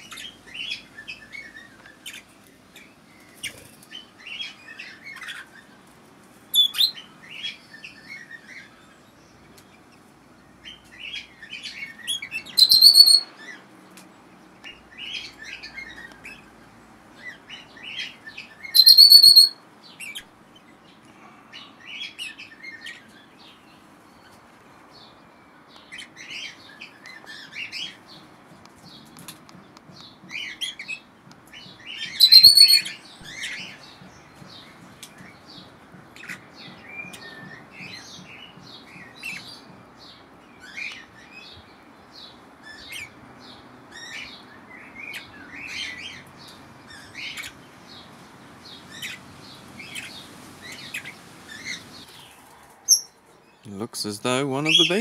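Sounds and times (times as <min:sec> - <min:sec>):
parrots chirping: 0:06.5 - 0:08.7, 0:10.7 - 0:13.6, 0:17.2 - 0:20.3, 0:31.8 - 0:34.0
loud high whistled calls: 0:12.1 - 0:13.6, 0:18.6 - 0:19.6, 0:32.0 - 0:33.8.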